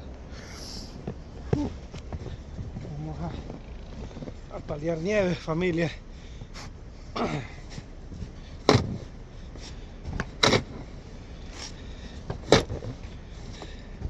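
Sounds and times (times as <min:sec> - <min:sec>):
steady low rumble: 0:00.0 - 0:14.0
snow shovel scraping ground: 0:00.4 - 0:14.0.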